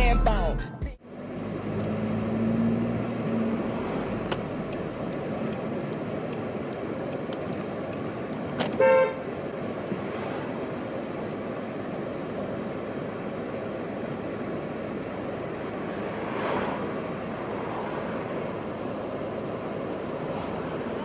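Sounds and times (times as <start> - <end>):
street traffic noise: 0.0 - 21.0
car horn toot: 8.6 - 9.3.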